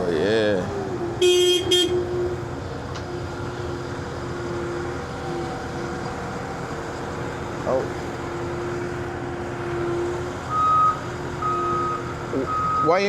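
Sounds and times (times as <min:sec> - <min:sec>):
diesel equipment droning: 0:00.0 - 0:13.0
short horn toot: 0:01.2 - 0:02.2.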